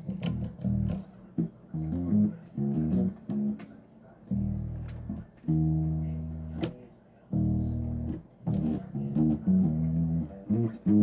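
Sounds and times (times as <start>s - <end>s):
bass guitar plucked notes: 0.1s - 1.0s, 1.8s - 3.6s, 4.3s - 6.7s, 7.4s - 11.0s.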